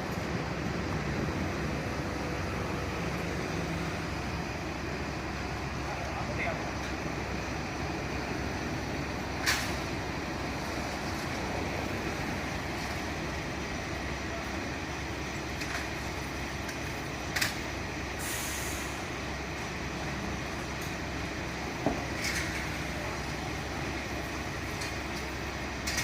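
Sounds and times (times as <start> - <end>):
large vehicle engine running: 0.0 - 26.0
short hiss: 18.2 - 19.0.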